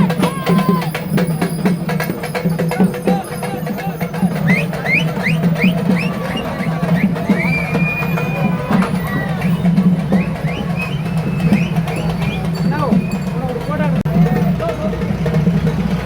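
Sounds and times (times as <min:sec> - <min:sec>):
crowd voices: 0:00.0 - 0:16.0
fast dense drumming: 0:00.0 - 0:16.0
rising whistle-like chirps: 0:04.1 - 0:13.5.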